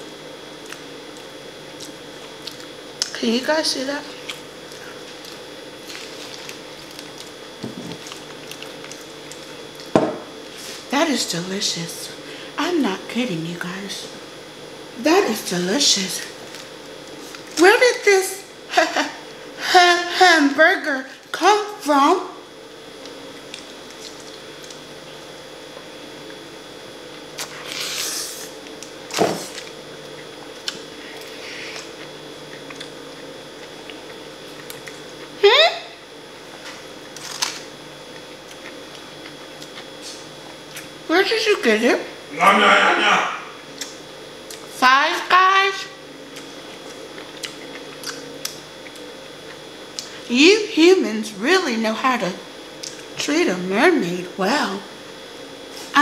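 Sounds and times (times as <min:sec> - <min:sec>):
faint steady hum: 0:00.0 - 0:56.0
person chewing: 0:00.6 - 0:03.1, 0:04.2 - 0:09.9, 0:23.0 - 0:24.8, 0:27.1 - 0:35.4, 0:36.5 - 0:41.0, 0:43.7 - 0:44.7, 0:46.3 - 0:50.2
low voiced sound: 0:42.3 - 0:43.6.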